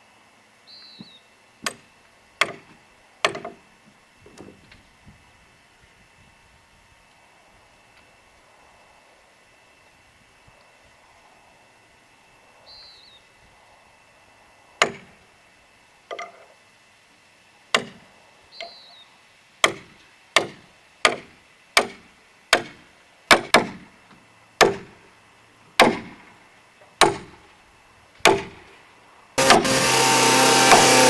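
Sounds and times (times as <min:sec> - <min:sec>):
heavy tool striking log: 0:02.4 - 0:03.6, 0:14.8 - 0:15.1, 0:17.7 - 0:18.0, 0:19.6 - 0:23.9, 0:24.6 - 0:25.0, 0:25.8 - 0:26.2, 0:27.0 - 0:27.5, 0:28.2 - 0:28.7, 0:29.4 - 0:31.0.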